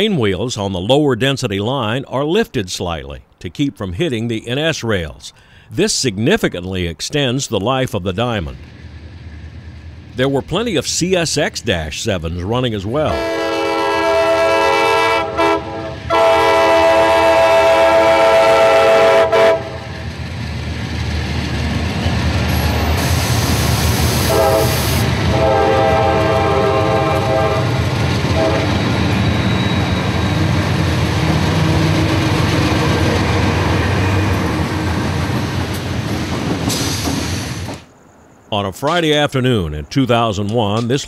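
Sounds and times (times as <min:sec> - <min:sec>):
diesel locomotives rumbling: 0:00.0 - 0:41.0
freight cars rolling: 0:06.2 - 0:13.4, 0:19.5 - 0:39.3
train horn blasts: 0:13.1 - 0:20.0, 0:24.2 - 0:30.4.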